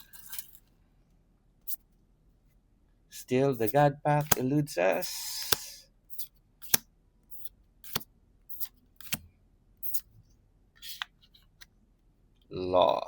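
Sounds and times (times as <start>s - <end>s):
trading cards snapping and sliding: 3.6s - 4.4s, 5.0s - 9.2s.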